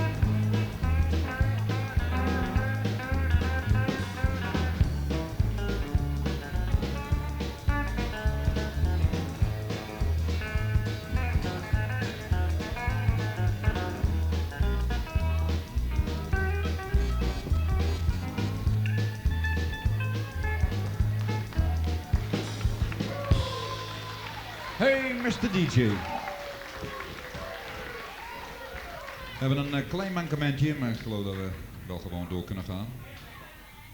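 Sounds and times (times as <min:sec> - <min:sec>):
electric and pedal steel guitars: 0:00.0 - 0:26.0
steady drum beat: 0:00.0 - 0:26.0
bass guitar walking line: 0:00.0 - 0:28.7.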